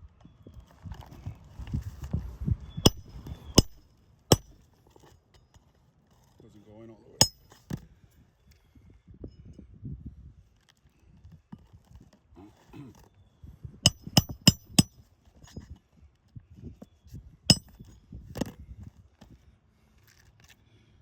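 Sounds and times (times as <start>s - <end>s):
hammer striking metal nail: 2.8s - 4.6s, 7.2s - 7.6s, 13.9s - 14.9s, 17.5s - 17.9s.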